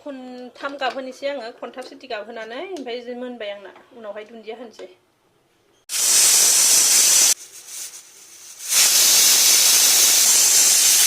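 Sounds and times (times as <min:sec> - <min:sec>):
pressure cooker whistle: 0:05.9 - 0:07.4, 0:08.6 - 0:11.0.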